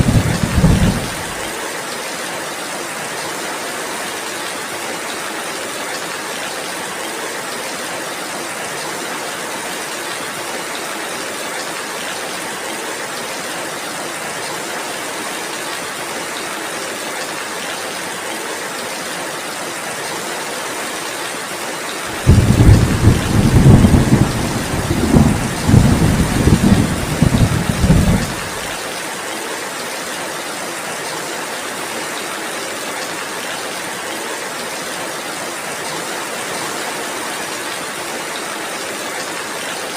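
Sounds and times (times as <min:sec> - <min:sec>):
thunder rumbling: 0:00.0 - 0:01.5, 0:22.1 - 0:28.8
heavy rain: 0:00.0 - 0:39.9.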